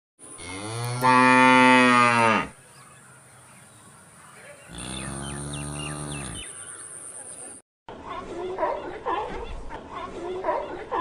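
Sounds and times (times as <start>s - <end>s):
cow mooing: 0.4s - 2.6s, 4.7s - 6.5s.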